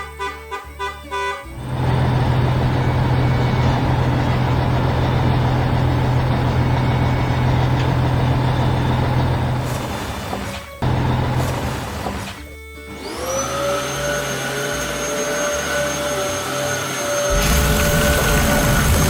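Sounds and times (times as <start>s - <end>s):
music: 0.0s - 19.0s
heavy vehicle engine running: 1.4s - 14.0s, 17.2s - 19.0s.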